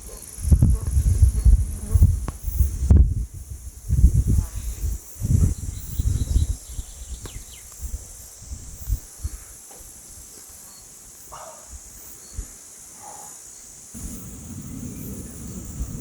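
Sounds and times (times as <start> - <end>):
crickets chirring: 0.0 - 16.0
low rumbling noise: 14.0 - 16.0.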